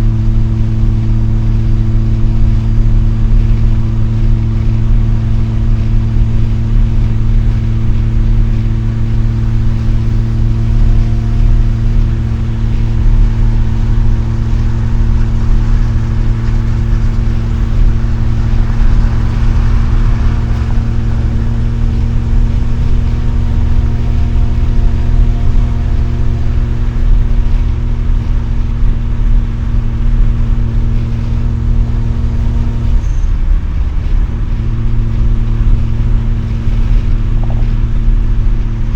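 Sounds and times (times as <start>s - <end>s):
road rumble: 0.0s - 38.9s
rotary engine droning: 0.0s - 38.9s.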